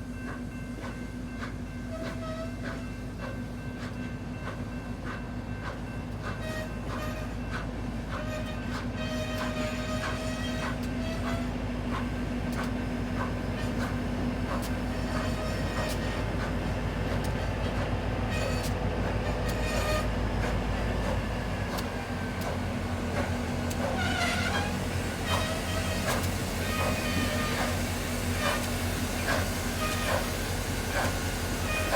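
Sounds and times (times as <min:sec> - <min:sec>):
train engine drone: 0:00.0 - 0:31.9
wavering squeal: 0:23.8 - 0:27.8.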